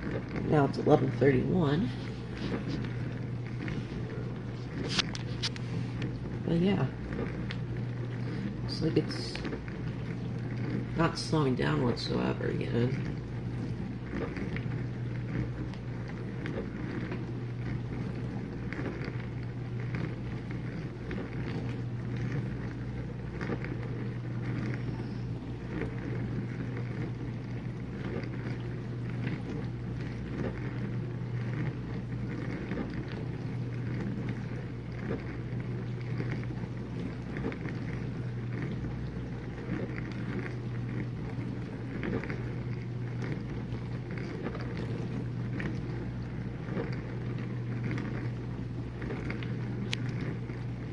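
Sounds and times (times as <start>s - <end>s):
water spraying inside dishwasher: 0.0s - 17.4s
dishwasher motor hum: 0.0s - 50.9s.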